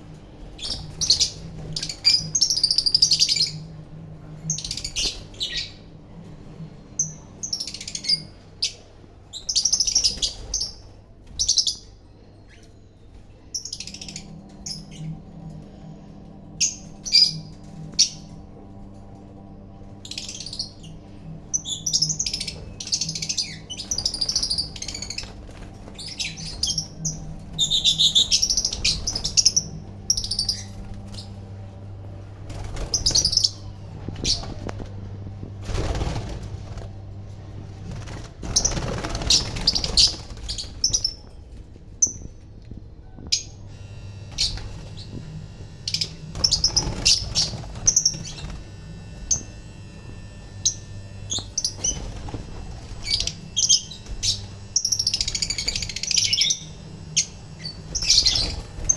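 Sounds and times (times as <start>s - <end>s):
lovebirds chirping: 20.0s - 31.7s, 50.6s - 58.9s
wings flapping: 22.0s - 42.2s, 44.3s - 49.7s, 51.3s - 58.9s.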